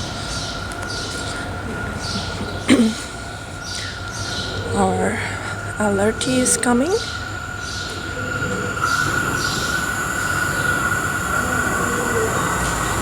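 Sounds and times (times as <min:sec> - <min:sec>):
train rumble: 0:00.0 - 0:13.0
high-pitched train squeal: 0:03.9 - 0:13.0.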